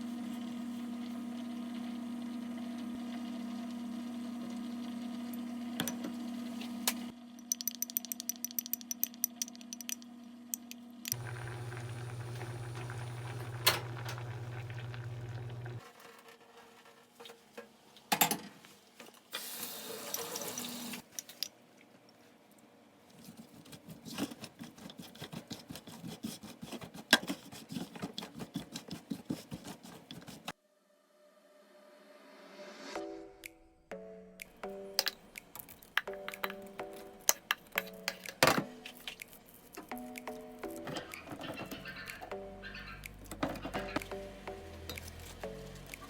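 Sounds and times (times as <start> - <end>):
appliance hum: 0.0 - 15.9, 40.5 - 46.0
running tap water: 0.1 - 7.1, 11.1 - 15.8, 19.4 - 21.0.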